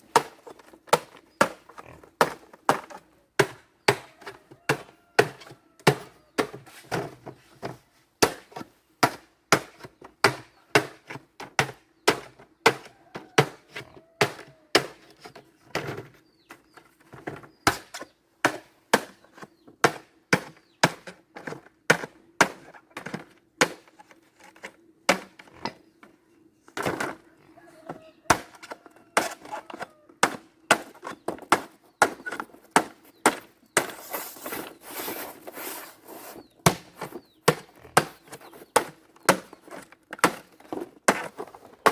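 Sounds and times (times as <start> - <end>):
wood being chopped: 0.1 - 7.0, 8.2 - 13.6, 14.2 - 15.2, 17.6 - 19.2, 19.8 - 23.9, 25.1 - 25.5, 28.3 - 34.0, 36.6 - 41.9.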